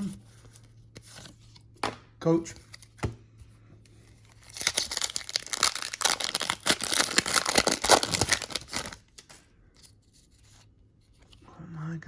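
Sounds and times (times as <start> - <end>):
wrapper tearing and crinkling: 4.3 - 9.3.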